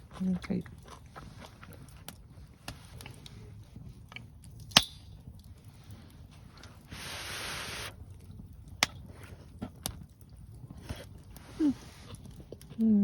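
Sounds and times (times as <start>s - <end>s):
steady hiss: 6.8s - 8.0s.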